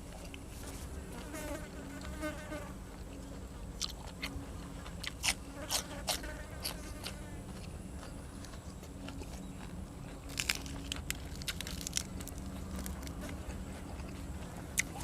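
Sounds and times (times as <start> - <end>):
crunching bites and chewing: 3.8 - 15.0.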